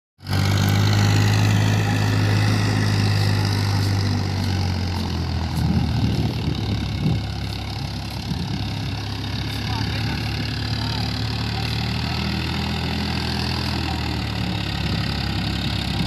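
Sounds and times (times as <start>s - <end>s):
tractor diesel engine drone: 0.2s - 16.0s.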